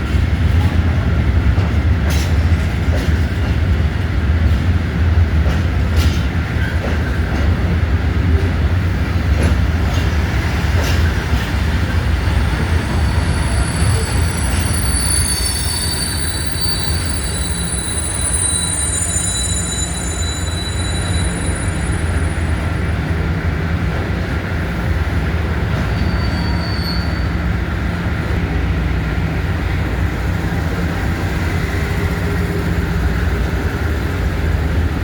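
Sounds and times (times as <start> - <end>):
train rumbling on rails: 0.0 - 35.0
high-pitched wheel squeal: 12.4 - 22.7, 26.0 - 27.4.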